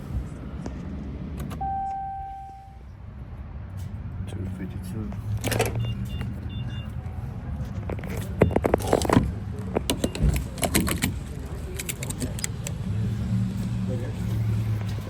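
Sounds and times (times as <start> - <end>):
short high beeps: 1.6 - 2.8
sharp clicks and knocks: 7.7 - 12.8.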